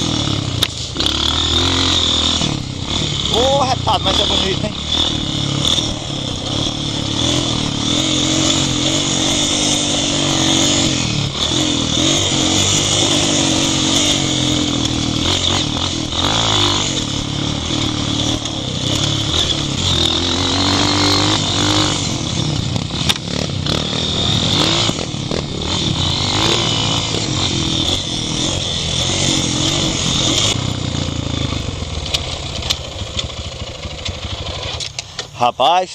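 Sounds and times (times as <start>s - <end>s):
off-road motorcycle engine revving: 0.0s - 35.9s.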